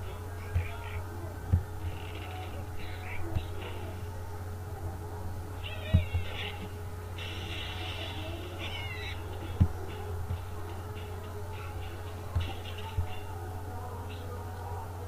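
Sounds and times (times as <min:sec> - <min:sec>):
small birds calling: 0:00.4 - 0:01.2, 0:01.8 - 0:04.0, 0:08.6 - 0:10.0
dull thumps: 0:05.8 - 0:06.7.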